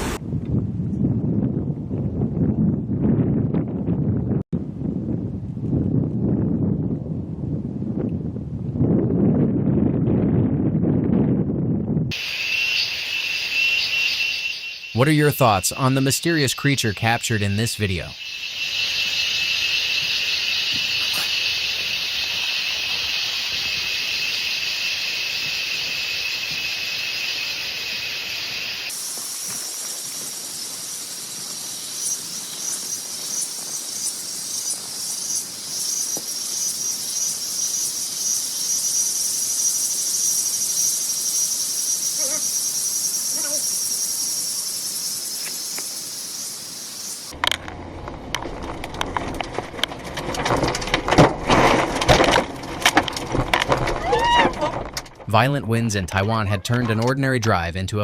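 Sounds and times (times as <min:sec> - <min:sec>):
insects chirring: 0:12.1 - 0:55.2.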